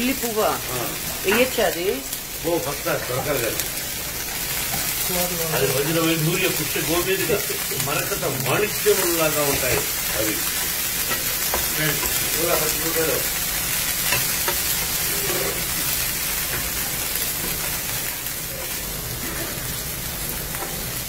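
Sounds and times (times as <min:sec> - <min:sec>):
onions sizzling in a pan: 0:00.0 - 0:21.0
wooden spoon stirring: 0:06.4 - 0:18.8.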